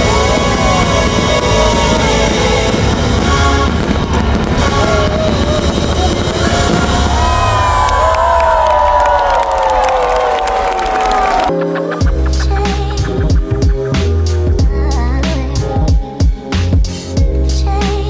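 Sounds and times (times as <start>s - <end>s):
loud music with heavy bass: 0.0s - 7.9s, 11.5s - 18.0s.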